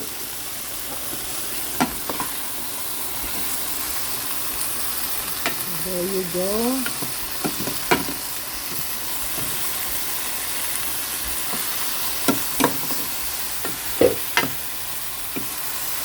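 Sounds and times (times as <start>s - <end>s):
chicken sizzling in a pot: 0.0s - 16.0s
utensil knocking on pot: 6.8s - 8.2s, 13.6s - 14.6s.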